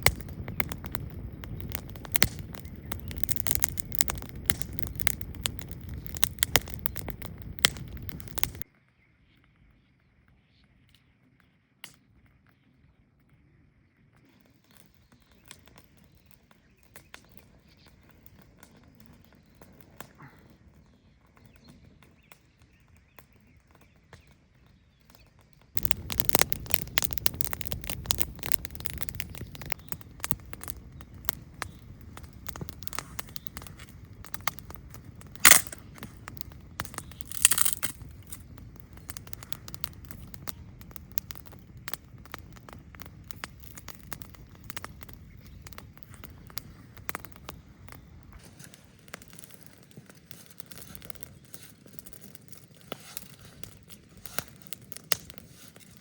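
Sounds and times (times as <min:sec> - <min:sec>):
campfire crackling: 0:00.0 - 0:08.7, 0:14.2 - 0:24.4, 0:25.0 - 0:56.0
loud fire pops: 0:00.0 - 0:08.7, 0:25.7 - 0:56.0.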